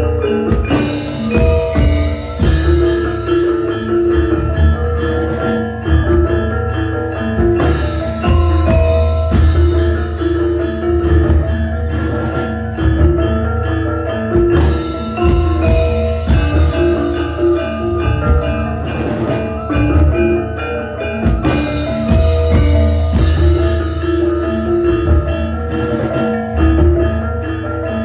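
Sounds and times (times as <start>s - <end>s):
drum strokes: 0.0s - 27.6s
struck bronze metallophones: 0.0s - 28.0s.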